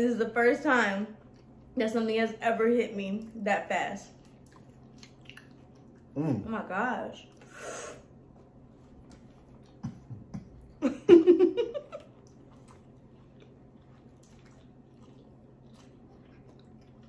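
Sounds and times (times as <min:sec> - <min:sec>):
person chewing: 0:04.2 - 0:06.4, 0:07.3 - 0:10.8, 0:11.8 - 0:17.0.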